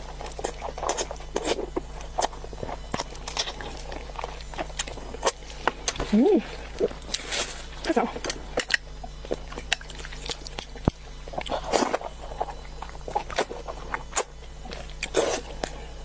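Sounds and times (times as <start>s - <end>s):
chewing and lip-smacking: 0.0s - 7.3s, 8.2s - 15.9s
low steady hum: 0.0s - 16.0s.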